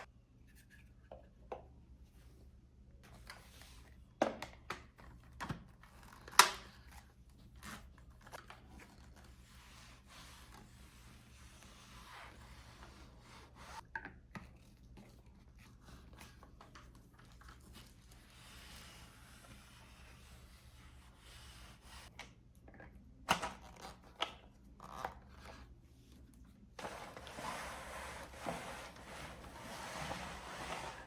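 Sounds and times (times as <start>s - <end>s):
faint rustling and scraping: 24.9s - 31.0s.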